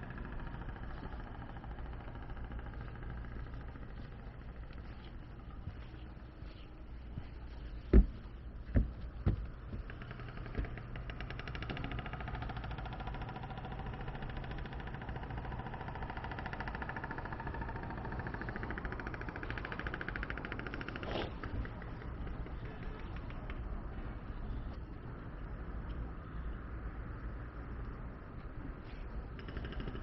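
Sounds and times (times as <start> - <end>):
pulsing machine hum: 0.0 - 30.0
sharp knocks: 7.9 - 11.8.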